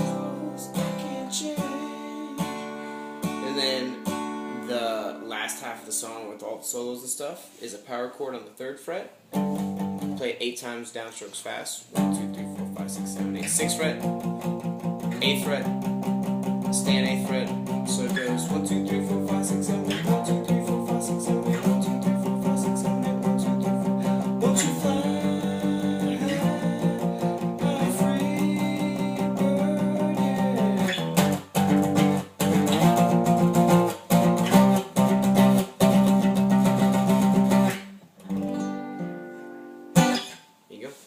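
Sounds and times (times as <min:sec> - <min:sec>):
guitar power chords strummed: 0:00.0 - 0:05.4, 0:09.3 - 0:10.2, 0:12.0 - 0:40.6.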